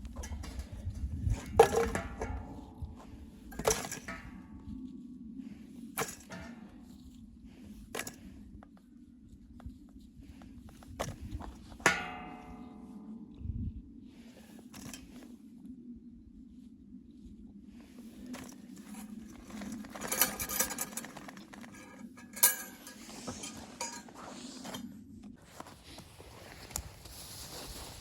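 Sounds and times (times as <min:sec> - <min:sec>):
low steady rumble: 0:00.0 - 0:24.1
knocks and clinks: 0:19.9 - 0:24.1.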